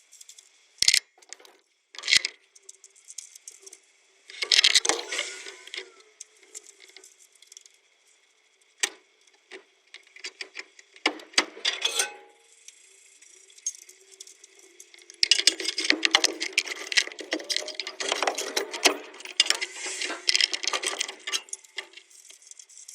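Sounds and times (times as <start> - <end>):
metal tools clinking and knocking: 11.6 - 12.4, 15.2 - 22.0
fast clatter of clicks: 15.2 - 22.2.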